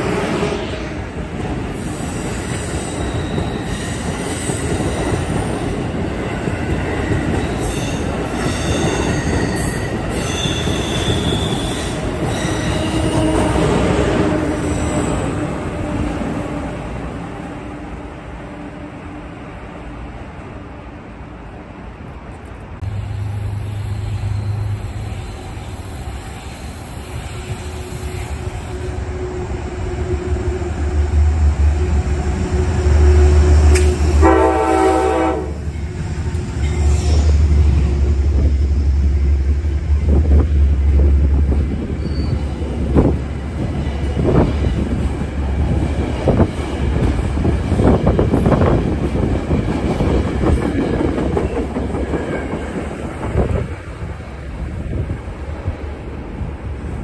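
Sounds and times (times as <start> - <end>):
train horn: 10.3 - 16.6, 31.8 - 35.7.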